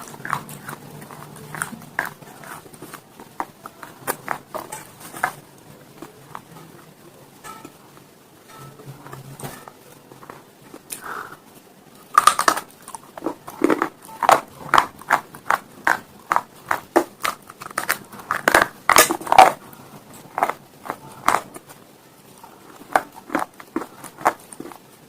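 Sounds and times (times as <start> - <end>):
stone being chewed with crunches: 0.0 - 5.4, 12.2 - 19.6, 20.2 - 21.6, 22.4 - 24.8.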